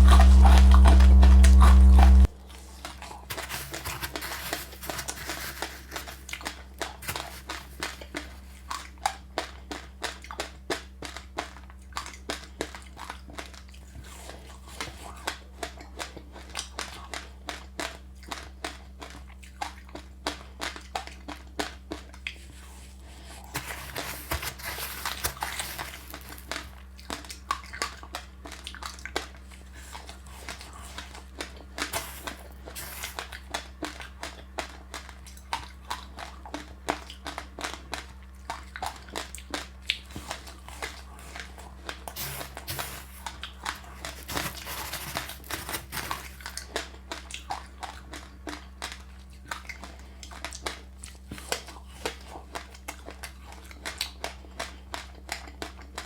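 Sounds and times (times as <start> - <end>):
crunchy chewing: 0.0 - 56.0
soft rustling: 3.3 - 6.3, 22.5 - 26.7, 40.2 - 46.5.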